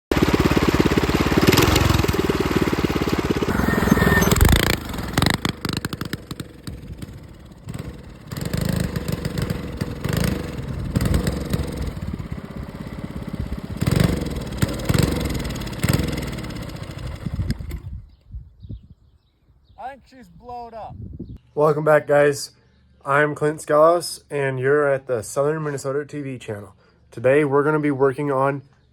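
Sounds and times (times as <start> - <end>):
mini bike engine revving and idling: 0.1 - 18.0.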